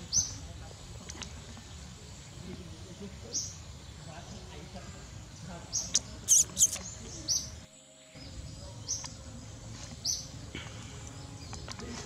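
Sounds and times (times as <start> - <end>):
outdoor background noise: 0.0 - 12.0
short high bird chirps: 5.8 - 7.0.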